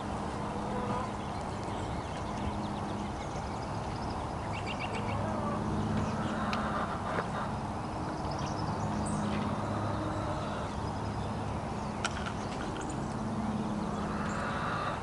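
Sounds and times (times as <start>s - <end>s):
hens clucking: 5.2s - 7.5s.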